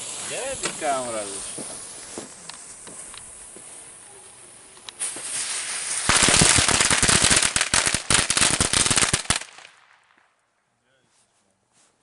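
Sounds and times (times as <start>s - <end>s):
fuse hissing: 0.0s - 6.2s
firecrackers banging rapidly: 5.0s - 9.7s.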